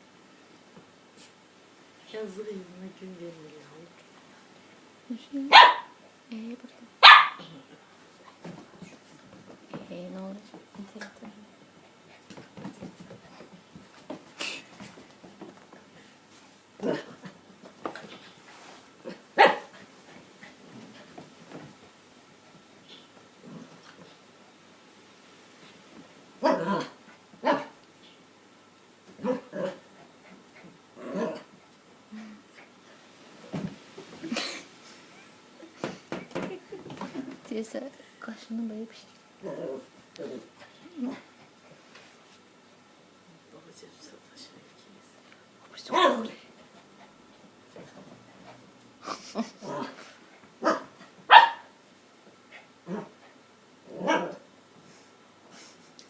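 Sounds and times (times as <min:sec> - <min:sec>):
dog barking: 0:05.5 - 0:06.0, 0:07.0 - 0:07.5, 0:19.4 - 0:19.7, 0:26.4 - 0:27.7, 0:50.6 - 0:51.7, 0:54.0 - 0:54.4.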